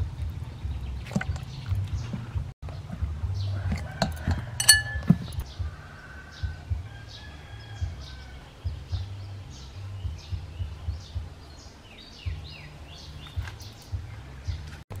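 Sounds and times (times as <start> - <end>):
small birds chirping: 0.0 - 4.2, 5.1 - 14.8
microphone rumble and bumps: 0.0 - 5.8, 7.8 - 11.4.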